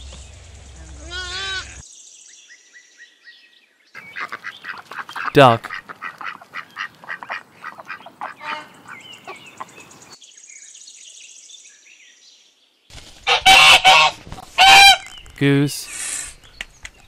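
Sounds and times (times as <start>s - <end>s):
faint bird chirping: 0.0s - 12.8s
duck quacking: 4.0s - 9.4s, 13.3s - 15.0s
goose honking: 4.0s - 9.4s, 13.3s - 15.0s.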